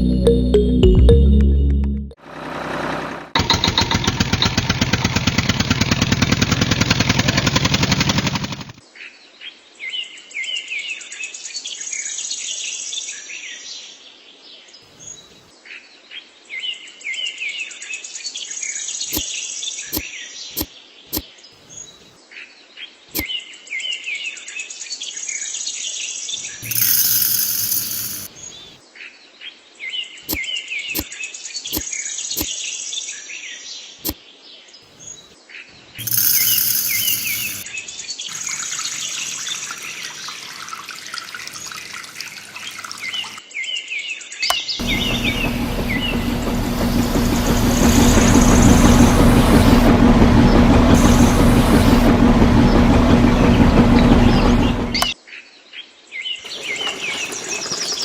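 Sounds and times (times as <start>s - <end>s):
loud mechanical drone: 2.2s - 8.6s, 26.6s - 28.3s, 36.0s - 37.6s, 44.8s - 55.1s
sharp clicks: 36.0s - 37.6s
birds chirping: 44.5s - 49.8s, 56.4s - 58.0s
loud rushing burst: 44.8s - 55.0s.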